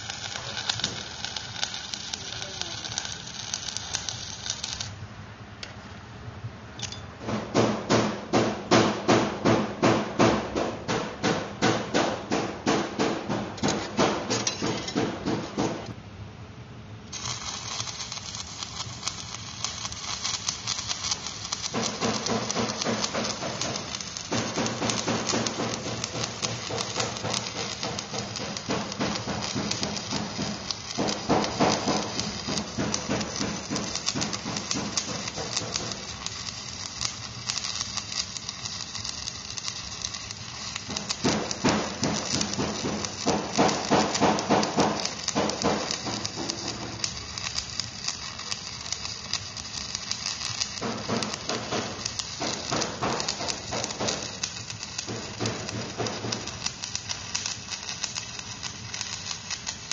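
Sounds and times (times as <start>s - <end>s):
welding arc crackling: 0.0s - 5.0s, 17.1s - 59.9s.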